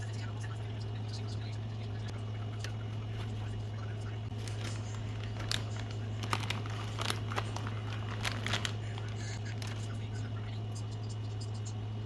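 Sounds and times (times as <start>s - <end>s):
steady low hum: 0.0s - 12.0s
clicks and crinkles: 2.0s - 3.6s, 4.2s - 10.3s.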